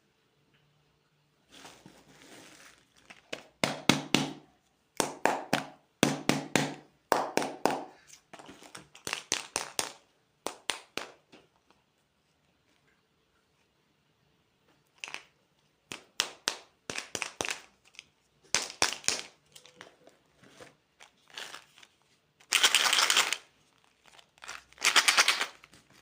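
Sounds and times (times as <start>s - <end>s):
packaging rustle: 1.5s - 3.5s, 19.3s - 26.0s.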